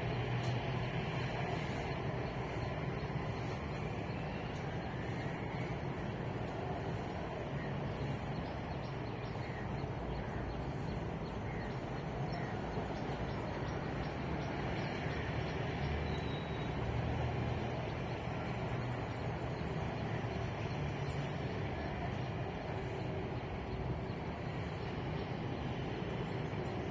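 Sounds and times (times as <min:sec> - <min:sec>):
road traffic rumble: 0:00.0 - 0:26.9.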